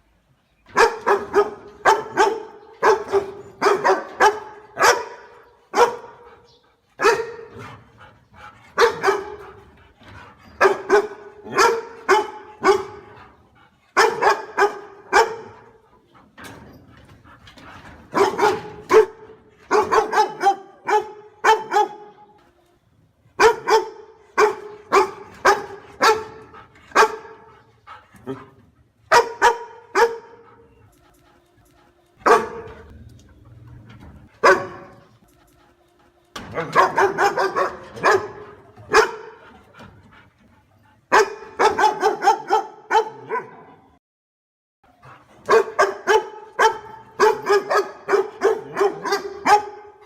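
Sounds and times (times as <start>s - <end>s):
dog barking: 0.7s - 6.4s, 7.0s - 7.6s, 8.8s - 9.6s, 10.6s - 13.2s, 14.0s - 15.8s, 18.1s - 22.2s, 23.4s - 27.5s, 29.1s - 30.6s, 32.2s - 32.9s, 34.4s - 35.1s, 36.4s - 39.4s, 41.1s - 43.8s, 45.5s - 50.0s.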